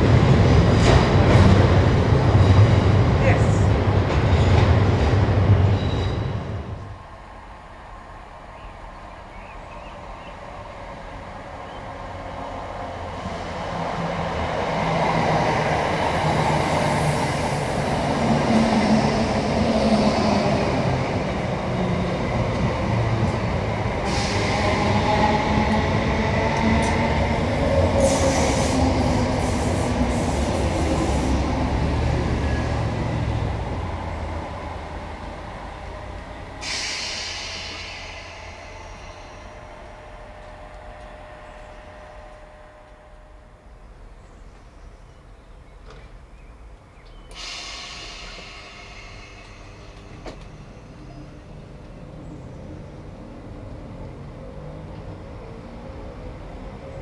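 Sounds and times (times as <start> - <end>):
passenger train passing: 0.0 - 57.0.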